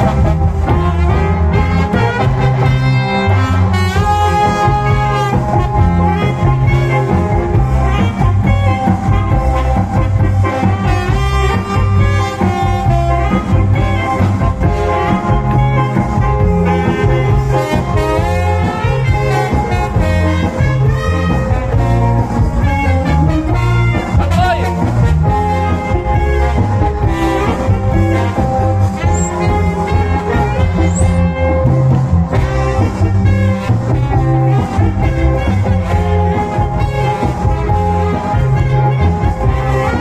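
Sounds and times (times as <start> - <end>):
cha-cha dance music: 0.0 - 40.0.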